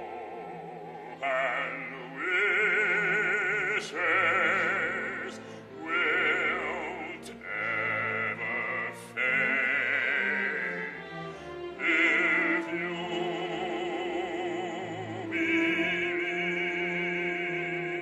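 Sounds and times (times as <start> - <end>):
music: 0.0 - 18.0
operatic singing with vibrato: 0.0 - 18.0.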